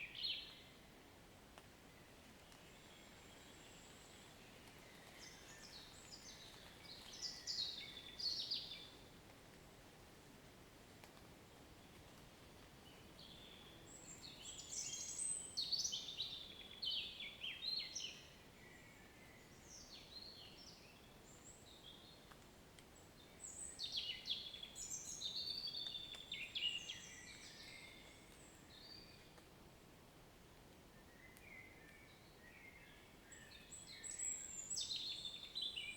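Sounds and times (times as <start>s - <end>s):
songbird chirps and trills: 12.9s - 22.3s.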